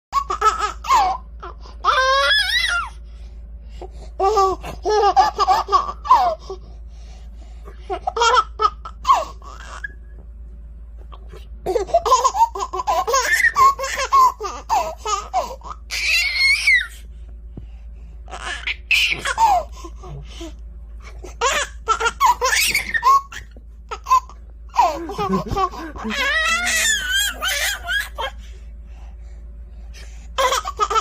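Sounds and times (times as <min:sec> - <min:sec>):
baby squealing: 0:01.9 - 0:02.9, 0:15.9 - 0:17.0, 0:18.4 - 0:19.6, 0:21.4 - 0:23.5, 0:26.1 - 0:28.3
baby giggling: 0:11.7 - 0:16.2, 0:18.3 - 0:19.7, 0:21.2 - 0:28.3.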